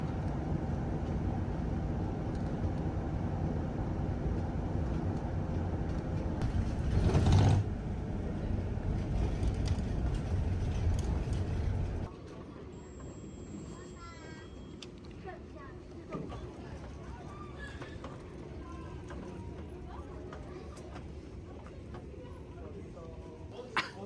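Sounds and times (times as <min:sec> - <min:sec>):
vehicle rumble in motion: 0:00.0 - 0:12.1.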